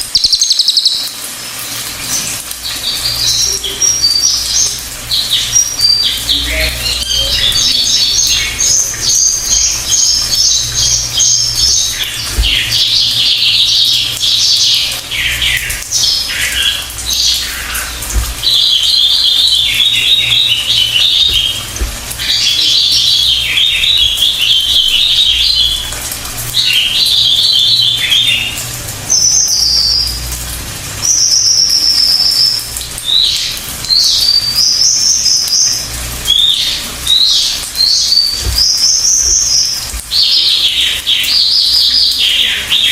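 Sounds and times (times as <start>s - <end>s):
bird singing trilled phrases: 0.0s - 42.9s.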